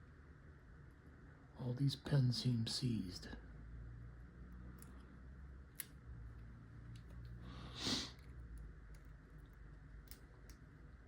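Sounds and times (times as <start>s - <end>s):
short hiss: 7.7s - 8.2s.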